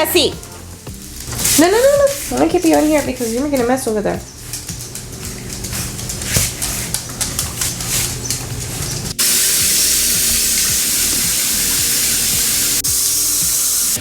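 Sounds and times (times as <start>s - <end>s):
shower sprayer hissing water: 0.0s - 14.0s
clicks and scuffs: 0.4s - 9.2s.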